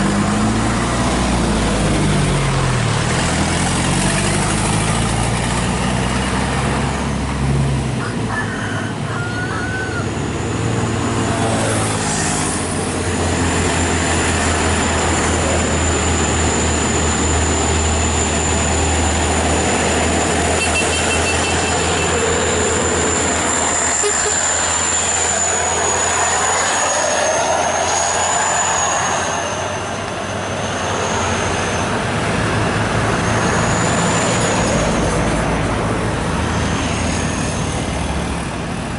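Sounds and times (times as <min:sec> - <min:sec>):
truck diesel engine droning: 0:00.0 - 0:38.9.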